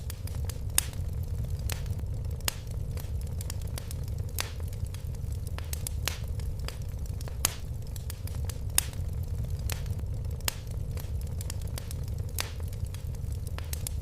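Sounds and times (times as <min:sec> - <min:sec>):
fire crackling in a fireplace: 0:00.0 - 0:14.0.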